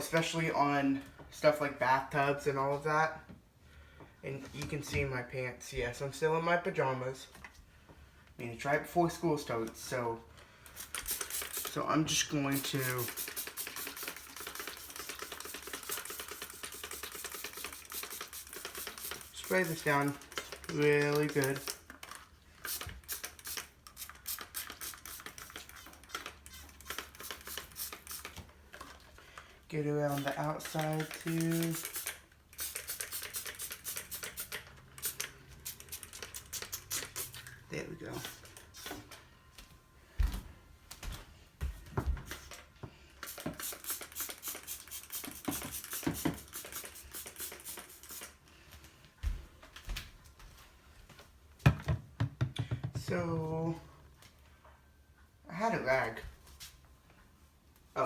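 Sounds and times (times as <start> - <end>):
spray bottle squirting: 10.7 - 11.8, 12.5 - 29.0, 30.1 - 39.1, 43.2 - 48.4
spray bottle trigger clicks: 10.7 - 11.8, 12.6 - 21.9, 22.6 - 28.4, 30.1 - 37.5, 43.2 - 48.4.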